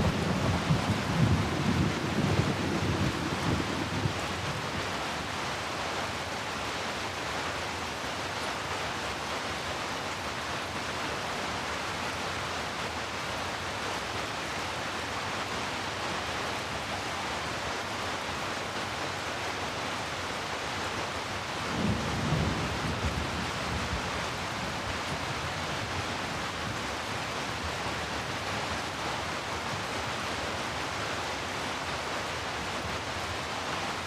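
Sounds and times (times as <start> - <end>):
low thunder rumble: 0.0 - 4.7, 21.7 - 25.2
heavy rain: 0.0 - 34.0.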